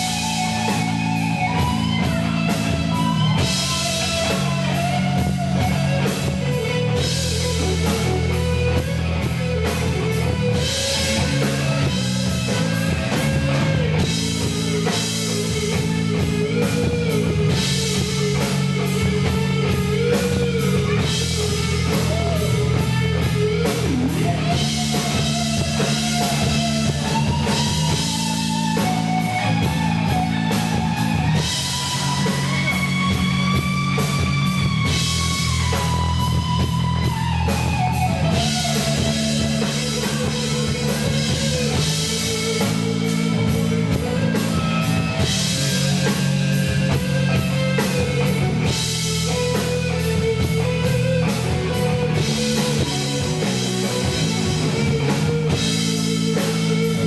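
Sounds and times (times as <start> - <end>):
lead guitar melody: 0.0 - 57.0
rock band playing: 0.0 - 57.0.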